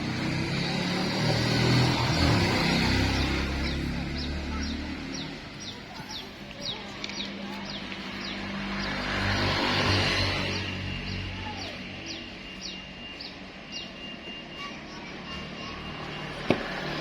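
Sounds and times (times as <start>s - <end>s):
bird chirping: 9.8s - 14.7s.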